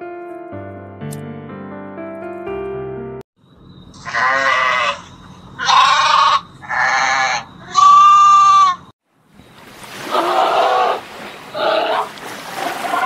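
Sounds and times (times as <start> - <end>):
sheep bleating: 4.0 - 8.9.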